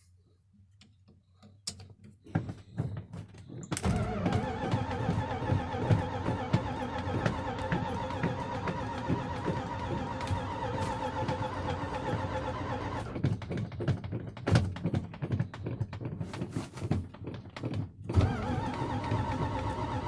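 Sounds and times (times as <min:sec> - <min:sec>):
engine knocks and pops: 0:02.2 - 0:20.0
engine running: 0:03.8 - 0:13.2, 0:18.2 - 0:20.0.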